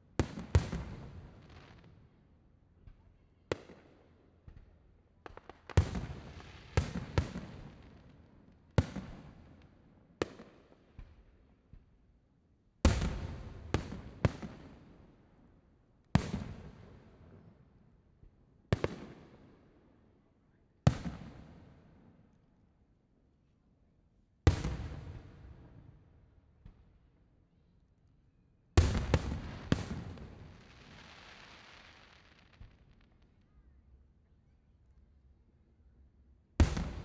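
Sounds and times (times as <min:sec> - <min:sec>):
fireworks booming: 0:28.8 - 0:31.0, 0:36.6 - 0:37.0.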